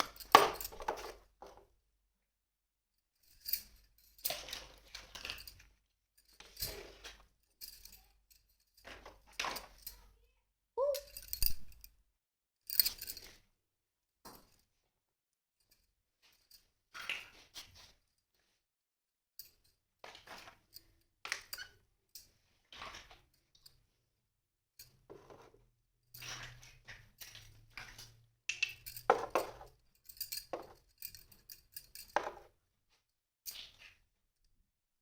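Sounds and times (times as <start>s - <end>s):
toy kitchen pieces clinking: 0.0s - 1.6s, 10.8s - 12.0s, 27.3s - 32.5s.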